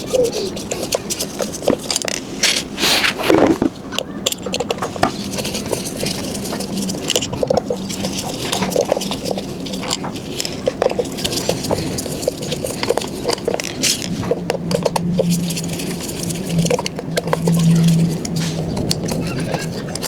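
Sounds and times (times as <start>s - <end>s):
pigeon cooing: 0.0s - 1.1s, 14.1s - 20.0s.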